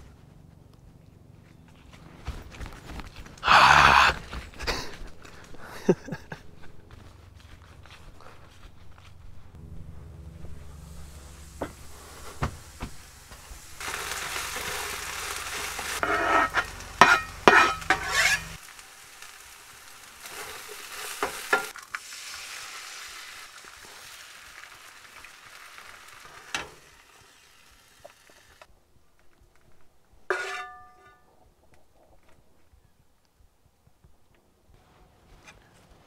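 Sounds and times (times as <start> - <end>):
food sizzling in frying pan: 10.7 - 28.7
spatula scraping and stirring: 13.8 - 18.6, 30.3 - 30.8.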